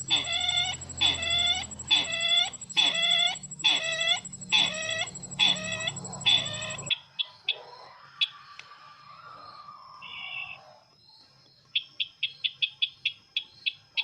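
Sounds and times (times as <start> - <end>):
nasal bird calls: 0.0 - 6.9.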